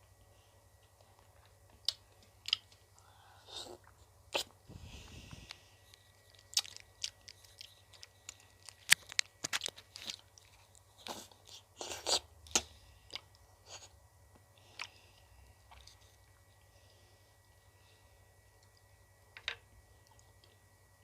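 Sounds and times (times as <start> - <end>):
crunching and chewing ice cream: 0.8 - 4.6, 5.4 - 16.7.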